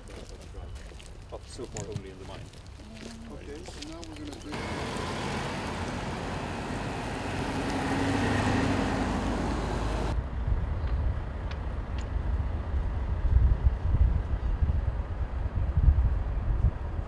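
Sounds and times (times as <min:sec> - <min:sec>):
heavy vehicle passing: 0:04.5 - 0:10.2
wind buffeting microphone: 0:04.5 - 0:17.0.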